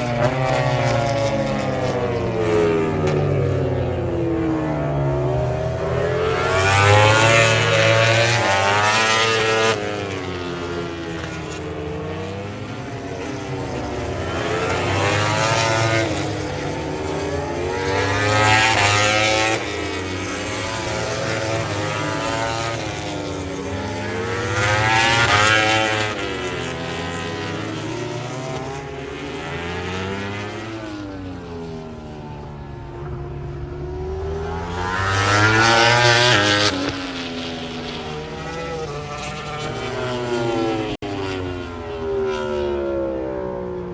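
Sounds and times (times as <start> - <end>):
racing motorcycles passing: 0.0 - 43.9.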